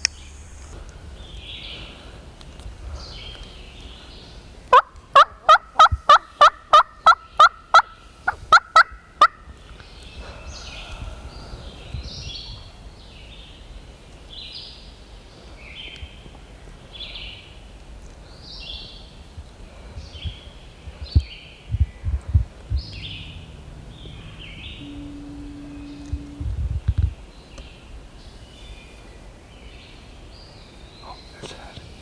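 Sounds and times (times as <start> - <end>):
songbird singing: 1.0 - 31.9
turkey yelping: 4.7 - 9.4.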